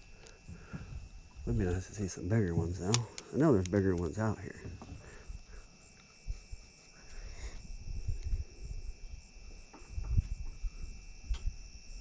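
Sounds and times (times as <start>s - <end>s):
insect chorus trilling: 0.0s - 12.0s
low rumbles and knocks: 9.7s - 10.7s.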